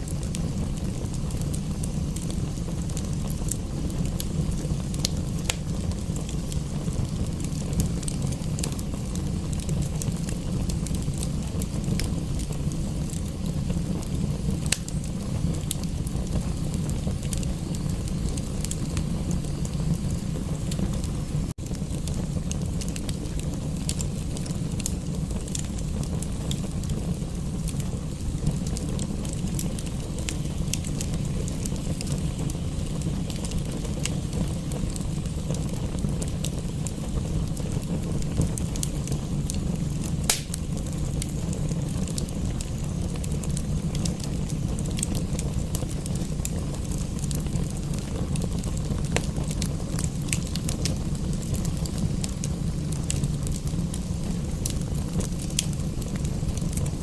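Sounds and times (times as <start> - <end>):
wood fire crackling: 0.0 - 57.0
sharp pops: 40.3 - 40.6.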